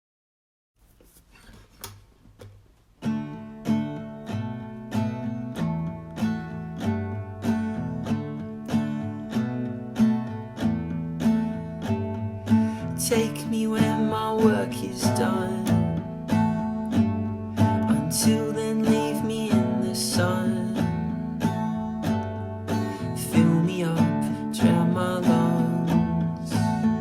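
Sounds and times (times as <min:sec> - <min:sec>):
faint taps: 0:01.5 - 0:02.9
acoustic guitar strummed chords: 0:03.0 - 0:27.0.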